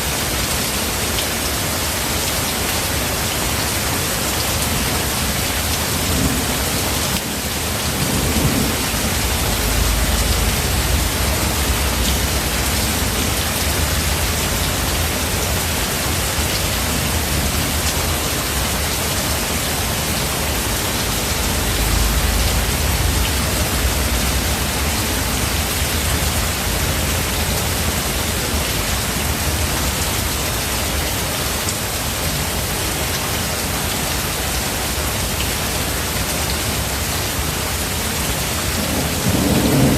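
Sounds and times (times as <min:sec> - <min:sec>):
heavy rain: 0:00.0 - 0:39.9
thunder rumbling: 0:05.2 - 0:18.8, 0:19.9 - 0:29.4, 0:38.8 - 0:39.9.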